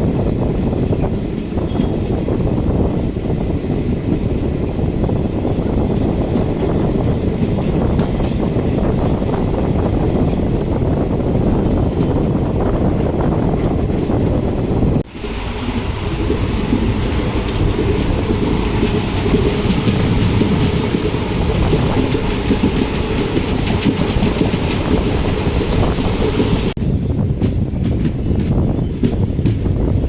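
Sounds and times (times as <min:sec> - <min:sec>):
train rumbling on track: 0:00.0 - 0:30.0
wheels clattering over rails: 0:15.0 - 0:26.8.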